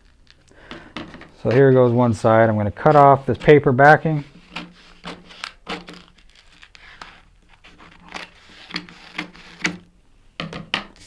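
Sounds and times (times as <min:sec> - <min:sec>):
paper crinkling and rustling: 0:04.2 - 0:09.8.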